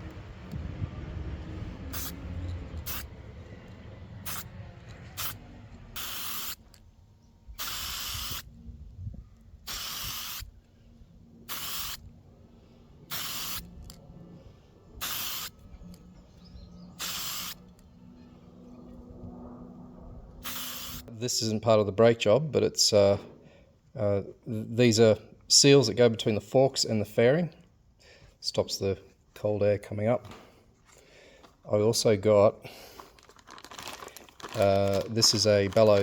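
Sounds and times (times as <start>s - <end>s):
aerosol spray can bursts: 1.9s - 2.2s, 2.8s - 3.1s, 4.3s - 4.5s, 5.2s - 5.4s, 6.0s - 6.6s, 7.6s - 8.4s, 9.7s - 10.5s, 11.5s - 12.0s, 13.1s - 13.6s, 15.0s - 15.5s, 17.0s - 17.6s, 20.4s - 21.0s.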